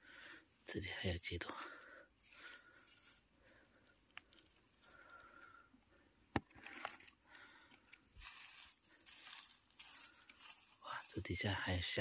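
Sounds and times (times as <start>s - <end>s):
rustling in leaf litter: 2.2s - 3.3s, 8.1s - 12.0s.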